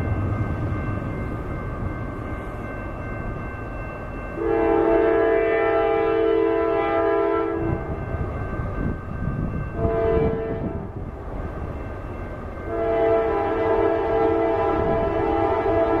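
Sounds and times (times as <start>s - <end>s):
train rumbling: 0.0s - 16.0s
locomotive air horn blasts: 4.4s - 7.8s, 9.8s - 10.9s, 12.7s - 16.0s.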